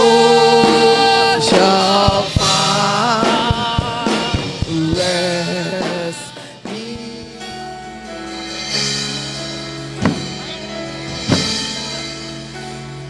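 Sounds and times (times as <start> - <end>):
held keyboard chords: 0.0 - 13.0
drum hits: 10.0 - 12.1.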